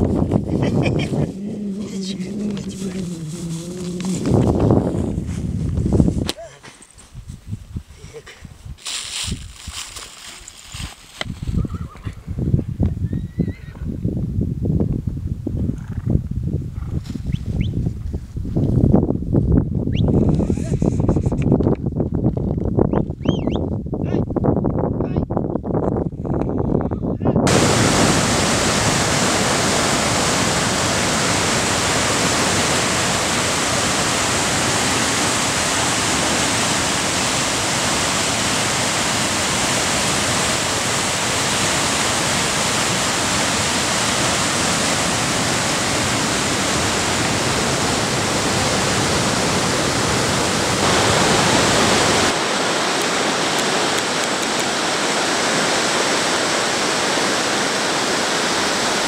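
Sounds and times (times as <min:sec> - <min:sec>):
rushing water: 0:00.0 - 0:05.0, 0:27.5 - 0:59.0.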